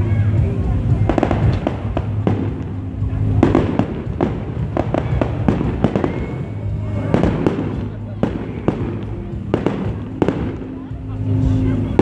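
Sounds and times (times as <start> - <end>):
fireworks bangs and crackles: 0.4 - 12.0.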